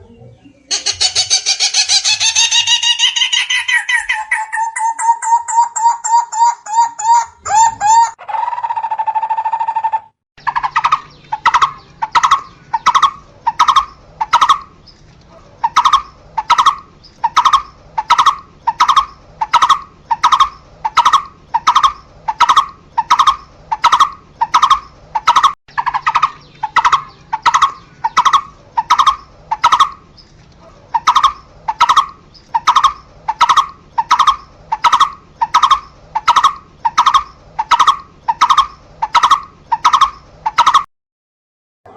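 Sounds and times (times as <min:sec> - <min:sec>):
bird calling: 0:00.0 - 0:40.9.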